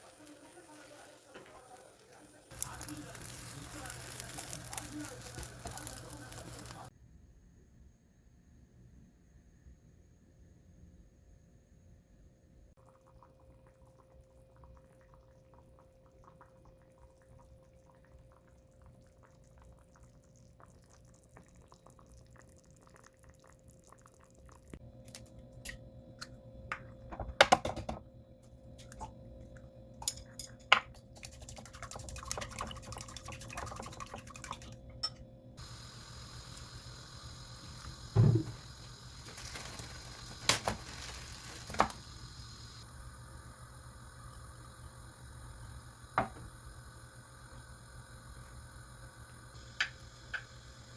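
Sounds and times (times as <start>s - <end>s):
steady sizzling hiss: 0.0s - 6.9s, 28.4s - 50.9s
liquid being poured: 31.1s - 42.8s.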